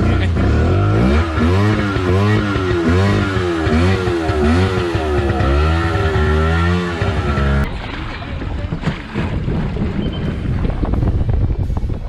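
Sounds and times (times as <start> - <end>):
jet ski engine revving: 0.0 - 7.7.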